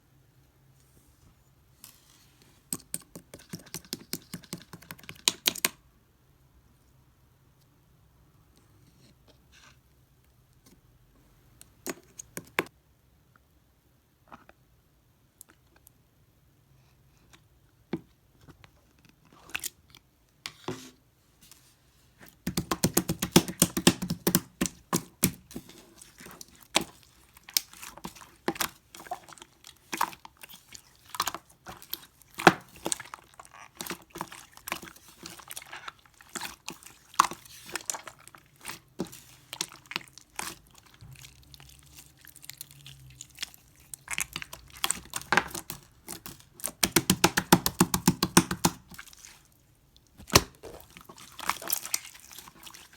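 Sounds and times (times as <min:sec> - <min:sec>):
slime squished by hand: 0:22.4 - 0:52.9.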